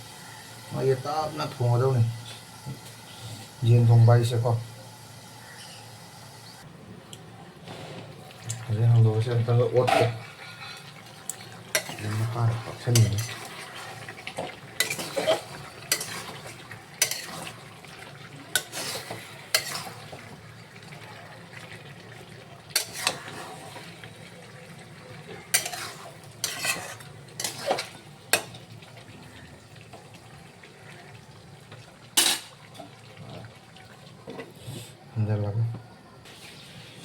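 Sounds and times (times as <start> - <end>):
faint frying sizzle: 0.0 - 37.0
utensil scraping a pot: 9.7 - 11.1, 11.7 - 14.2, 14.8 - 17.6, 18.5 - 20.2, 22.7 - 23.8, 25.5 - 28.4.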